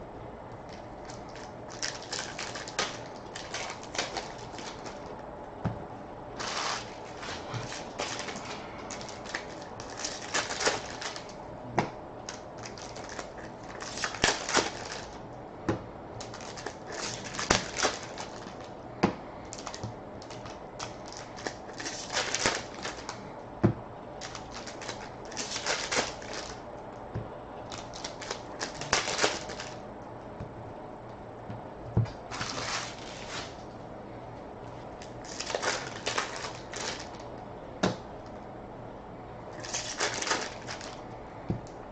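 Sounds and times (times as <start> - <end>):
wrappers crinkling and tearing: 0.7 - 5.1, 6.4 - 11.4, 12.2 - 15.2, 16.2 - 18.8, 19.5 - 23.2, 24.2 - 26.6, 27.7 - 29.8, 32.2 - 33.6, 35.0 - 37.3, 39.5 - 41.1.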